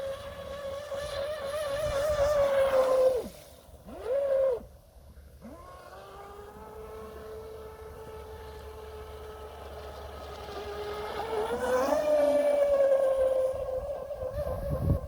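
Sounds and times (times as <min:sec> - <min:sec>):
toy boat motor whining: 0:00.0 - 0:04.7, 0:05.4 - 0:15.0.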